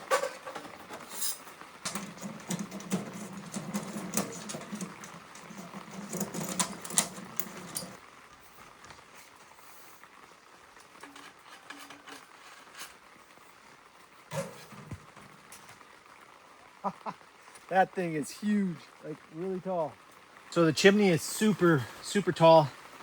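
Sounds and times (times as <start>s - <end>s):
rustling: 0.0s - 16.0s
metal parts clicking and knocking: 0.1s - 8.0s.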